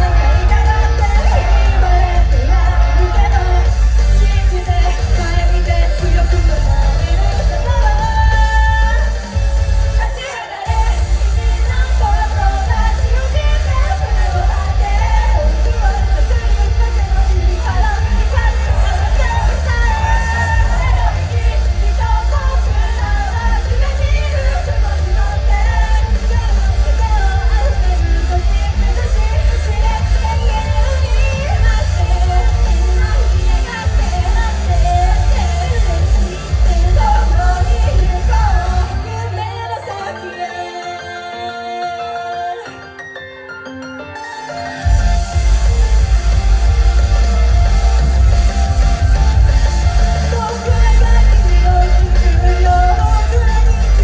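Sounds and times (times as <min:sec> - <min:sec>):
heavy bass: 0:00.0 - 0:39.2, 0:44.9 - 0:54.0
live band music: 0:00.0 - 0:54.0
person singing: 0:48.0 - 0:54.0.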